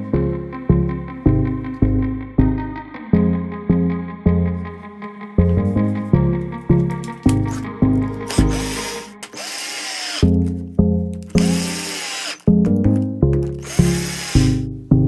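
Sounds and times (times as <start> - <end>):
power tool motor whine: 8.3 - 10.5, 11.3 - 12.5, 13.6 - 14.7
music with plucked bass: 14.6 - 15.0.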